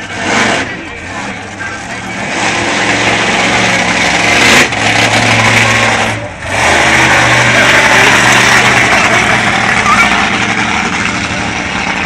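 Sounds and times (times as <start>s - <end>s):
truck engine at high revs: 0.0s - 12.0s.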